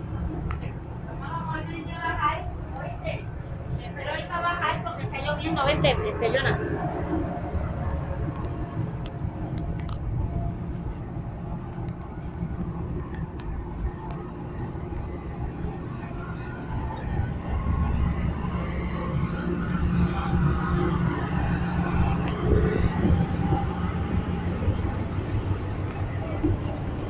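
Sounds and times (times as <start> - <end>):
ferry engine rumble: 0.0 - 27.0
faint clicks: 7.3 - 11.0.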